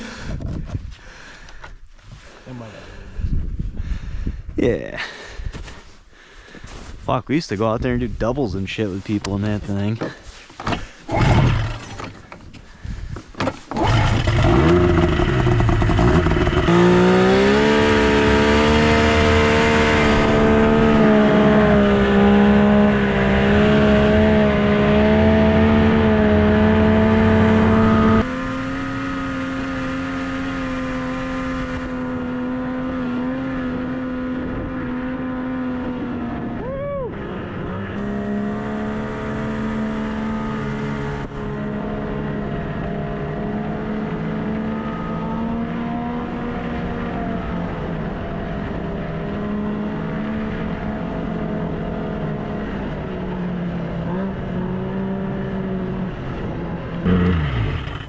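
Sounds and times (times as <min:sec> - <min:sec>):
snowmobile engine droning: 0:13.7 - 0:58.0.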